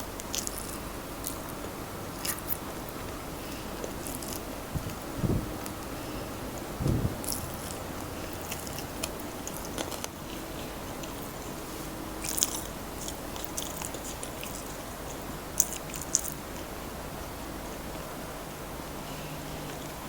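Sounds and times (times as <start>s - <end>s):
chewing crispy fried chicken: 0.0s - 20.0s
soft low thump: 6.8s - 7.8s.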